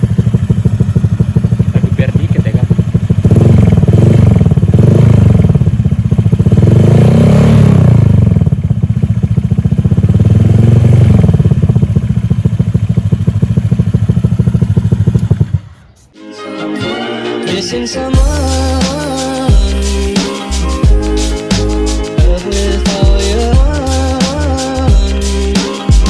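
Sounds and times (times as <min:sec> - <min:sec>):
scooter engine revving: 0:00.0 - 0:16.1.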